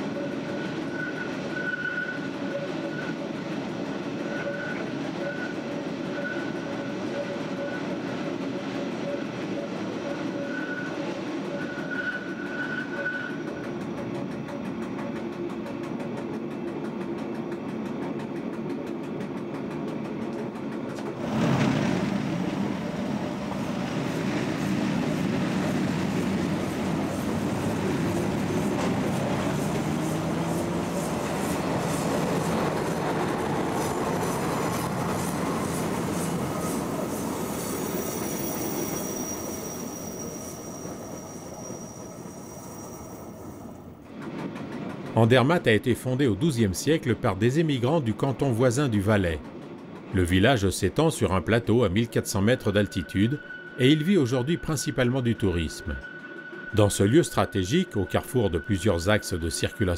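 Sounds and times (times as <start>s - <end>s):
high wheel squeal: 0.0s - 3.4s, 4.1s - 8.0s, 9.1s - 13.8s, 24.0s - 44.0s, 51.5s - 59.9s
train rumbling on rails: 0.0s - 59.9s.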